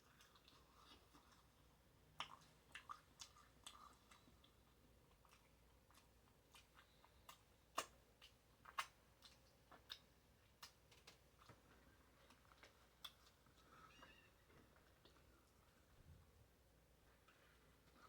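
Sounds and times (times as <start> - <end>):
wet chewing mouth clicks: 2.2 - 11.2.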